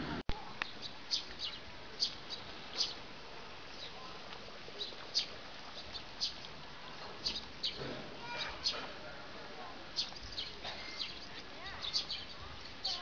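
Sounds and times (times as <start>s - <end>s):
faint background hiss: 0.0s - 13.0s
small birds chirping: 0.4s - 9.0s, 9.9s - 13.0s.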